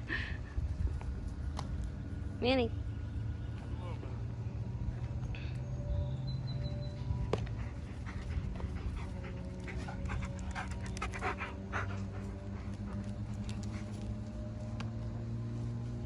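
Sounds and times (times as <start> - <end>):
steady low hum: 0.0 - 16.0
dog panting: 7.4 - 14.3.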